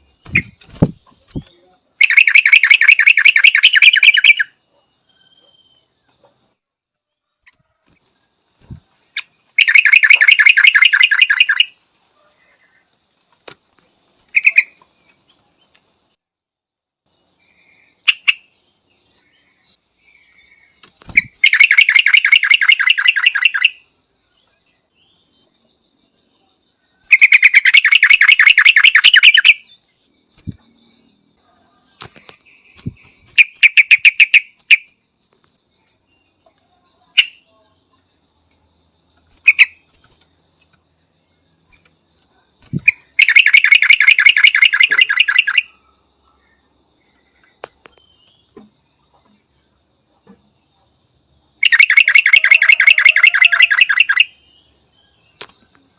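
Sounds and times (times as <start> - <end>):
single bird chirps: 0.0 - 6.5, 7.4 - 11.8, 17.7 - 23.9
bird chattering calls: 2.0 - 4.5, 9.2 - 11.7, 21.1 - 23.8, 27.1 - 29.6, 42.7 - 45.7, 51.6 - 54.3.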